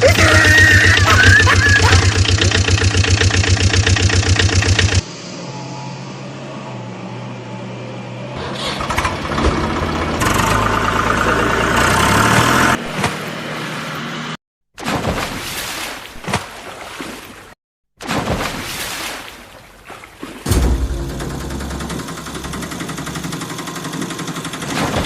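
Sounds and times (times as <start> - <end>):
engine chugging: 0.0 - 5.1, 8.4 - 12.8, 20.6 - 25.0
vehicle sound: 0.1 - 14.4.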